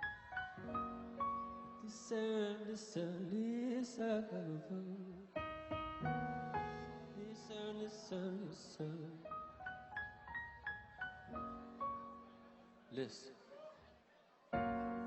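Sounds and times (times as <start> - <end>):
held keyboard chords: 5.4 - 7.7.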